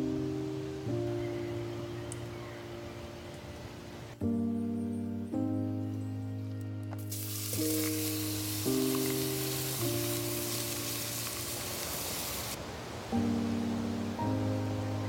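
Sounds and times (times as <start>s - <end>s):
background music: 0.0s - 12.4s, 13.1s - 15.0s
food sizzling: 7.1s - 12.6s.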